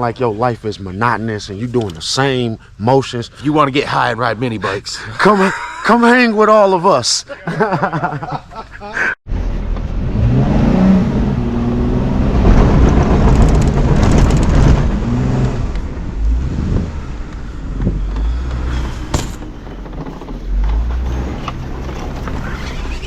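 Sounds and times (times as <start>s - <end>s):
off-road vehicle engine revving: 9.4s - 23.0s.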